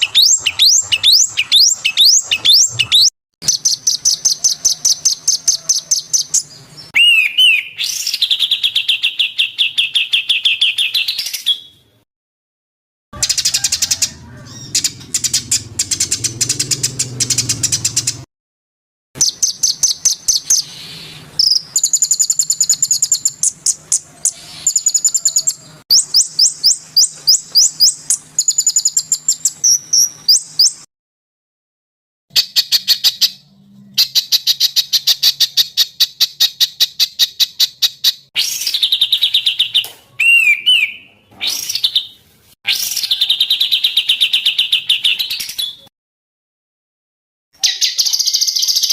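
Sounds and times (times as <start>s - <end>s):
songbird singing trills: 0.0s - 11.7s, 19.2s - 30.9s.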